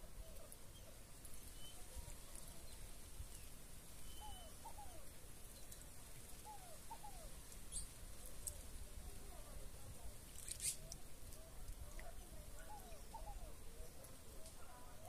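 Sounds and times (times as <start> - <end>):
faint bird calls: 3.4 - 8.0, 10.4 - 15.0.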